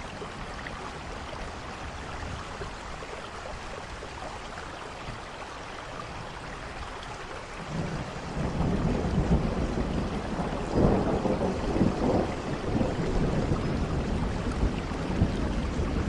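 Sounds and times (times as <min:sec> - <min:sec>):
steady rain: 0:00.0 - 0:16.0
thunder rumbling: 0:07.6 - 0:16.0.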